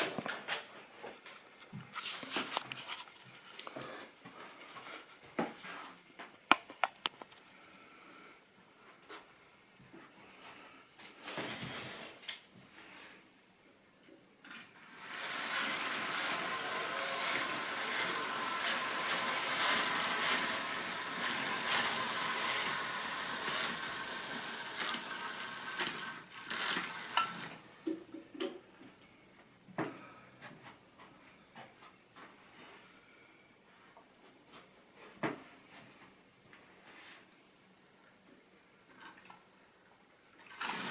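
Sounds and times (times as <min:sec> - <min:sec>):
model train wheels rattling on rail: 0:14.8 - 0:27.5, 0:40.4 - 0:40.9.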